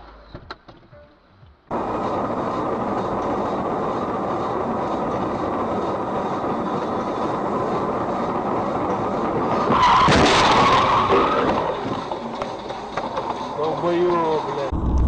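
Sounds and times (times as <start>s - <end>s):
car road noise: 1.7s - 15.0s
tyre screech: 9.4s - 14.6s.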